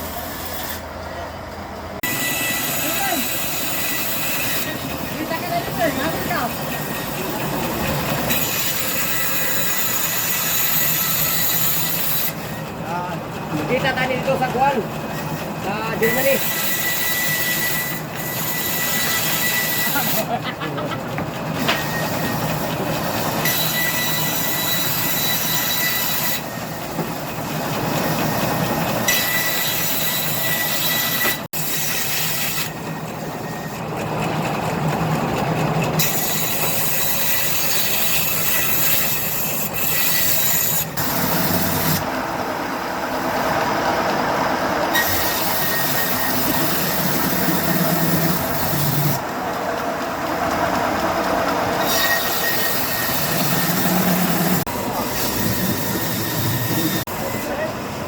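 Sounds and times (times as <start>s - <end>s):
band saws cutting logs: 0.0s - 1.2s, 1.9s - 58.0s.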